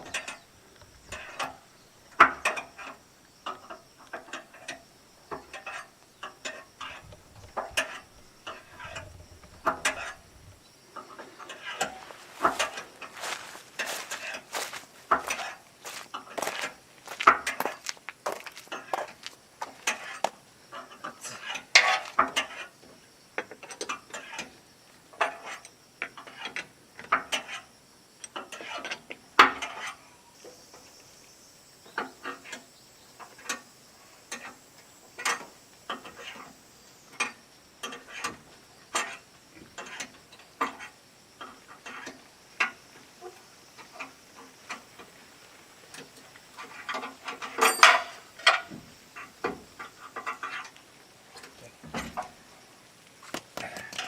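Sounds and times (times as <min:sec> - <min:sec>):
metal hand tools clinking: 0:47.0 - 0:48.7.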